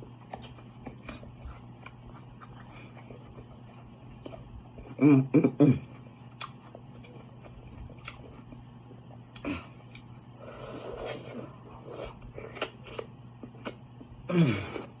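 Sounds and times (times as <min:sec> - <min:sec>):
person chewing with wet clicks: 0:00.0 - 0:05.0, 0:05.9 - 0:14.2
steady low hum: 0:00.0 - 0:15.0
slurping: 0:10.4 - 0:13.1.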